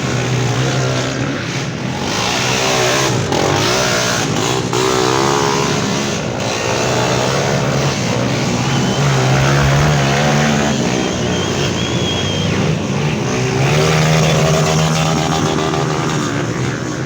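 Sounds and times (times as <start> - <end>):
motorcycles revving: 0.0 - 17.0
engine running steadily: 4.2 - 17.0.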